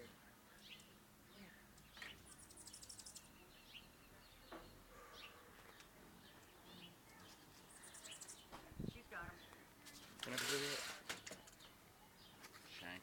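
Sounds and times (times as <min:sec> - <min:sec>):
faint bird chirps: 0:00.0 - 0:10.1.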